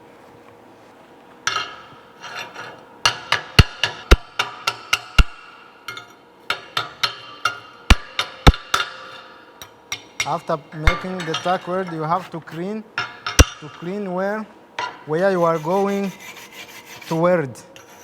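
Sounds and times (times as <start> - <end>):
hammer clinking on steel plate: 1.5 - 12.2, 13.0 - 14.0
hammer scraping steel: 1.5 - 14.0, 14.8 - 18.0.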